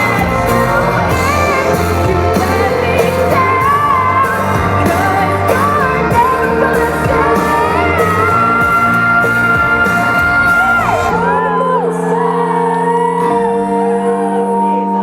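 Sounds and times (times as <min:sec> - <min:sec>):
drums: 0:00.0 - 0:11.6
held chords: 0:00.0 - 0:15.0.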